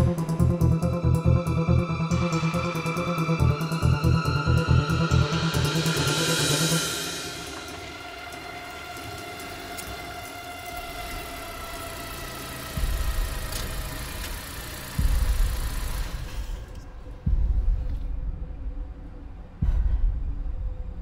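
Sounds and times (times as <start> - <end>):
car engine running: 10.5 - 17.0.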